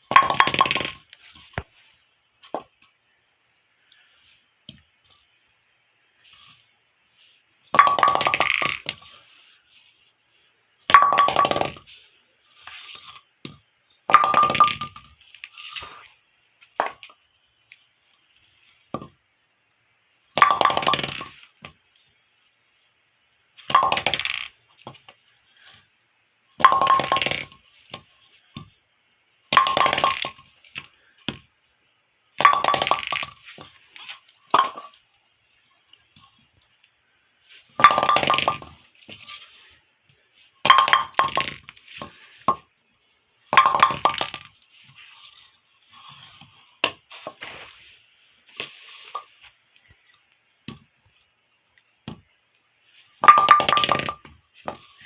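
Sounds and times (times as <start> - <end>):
bowling pin clattering impacts: 0.1 - 1.0, 7.8 - 9.1, 32.4 - 35.0, 37.8 - 39.4, 40.7 - 42.6.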